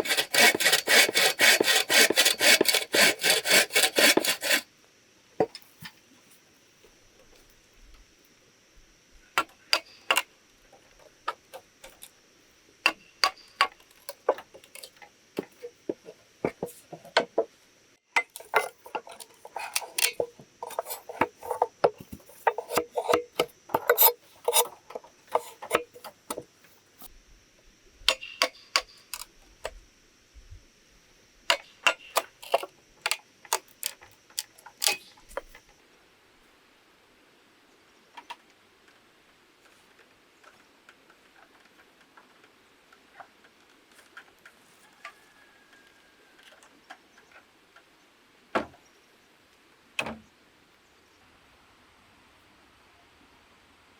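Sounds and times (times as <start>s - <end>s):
faint high whine: 4.3s - 38.3s.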